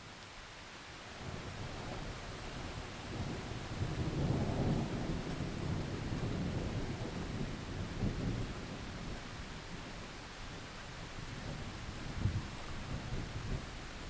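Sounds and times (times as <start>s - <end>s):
steady rain: 0.0s - 14.0s
rolling thunder: 1.6s - 9.2s.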